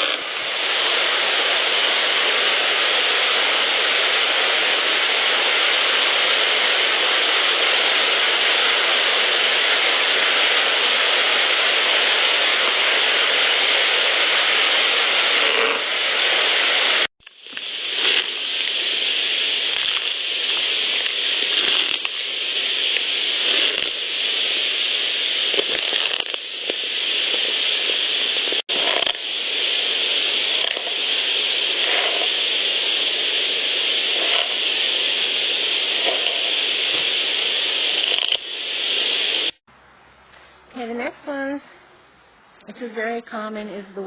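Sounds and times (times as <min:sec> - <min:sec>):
faint scratching and crackling: 0:00.0 - 0:00.4, 0:15.2 - 0:15.9, 0:17.2 - 0:24.1, 0:25.5 - 0:27.5, 0:28.4 - 0:29.3, 0:30.4 - 0:33.0, 0:34.1 - 0:35.0, 0:35.9 - 0:37.2
loud steady hiss: 0:00.0 - 0:44.0.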